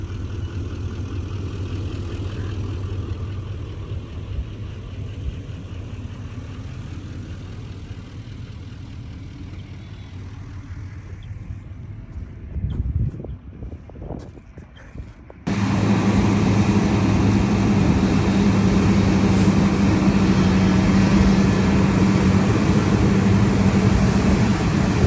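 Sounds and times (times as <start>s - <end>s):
heavy machinery engine running: 15.5s - 25.0s.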